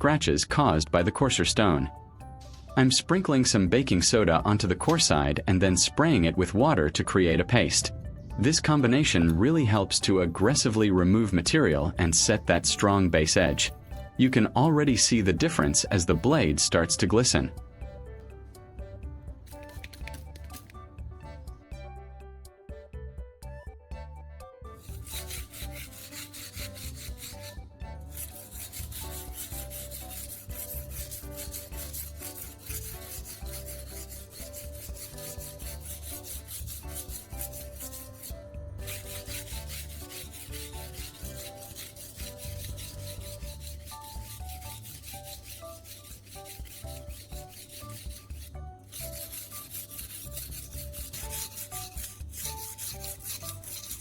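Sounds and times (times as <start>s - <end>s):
knife scraping on whetstone: 12.0s - 16.4s, 19.5s - 20.8s, 24.8s - 54.0s.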